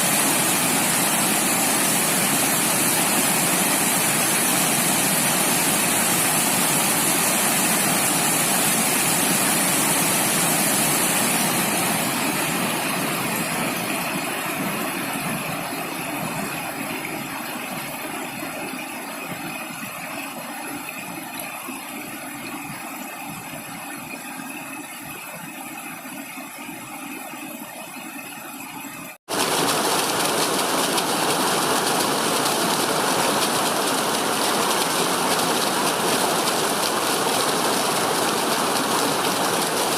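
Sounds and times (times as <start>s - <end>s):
rushing water: 0.0s - 28.3s, 29.3s - 39.9s.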